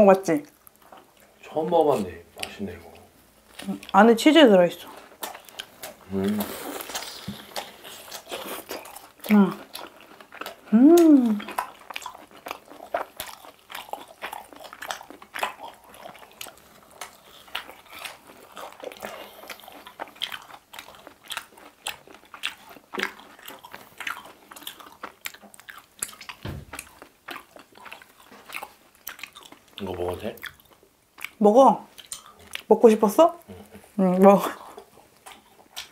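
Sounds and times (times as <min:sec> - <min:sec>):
crunching crispy food: 0:04.8 - 0:31.4.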